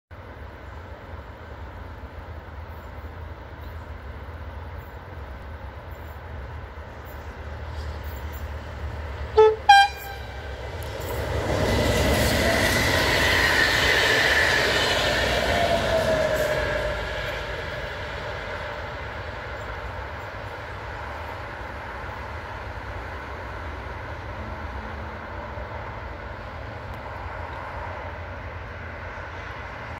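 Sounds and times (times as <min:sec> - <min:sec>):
train rolling noise: 0:00.1 - 0:29.9
train whine: 0:00.2 - 0:29.9
train horn toots: 0:09.3 - 0:10.6.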